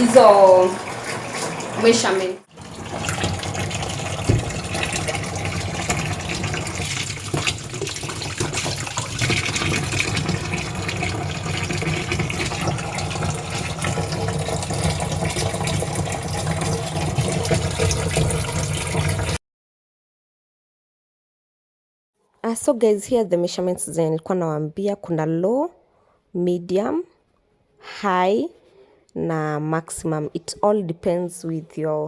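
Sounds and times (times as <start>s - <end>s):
water pouring into washing machine: 0.0s - 19.4s.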